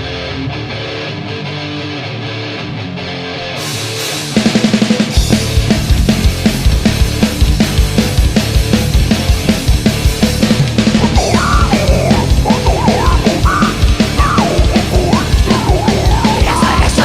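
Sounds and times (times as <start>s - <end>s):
distorted guitars: 0.0s - 17.0s
heavy metal band playing live: 0.0s - 17.0s
fast kick drum beats: 9.7s - 17.0s
wavering bending high line: 11.1s - 16.8s.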